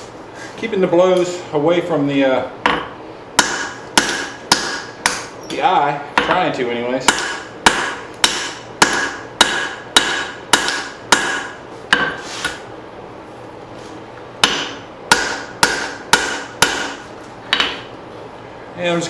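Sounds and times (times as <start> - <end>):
hammer striking hot steel on anvil: 2.6 - 5.3, 7.1 - 12.2, 14.4 - 17.8.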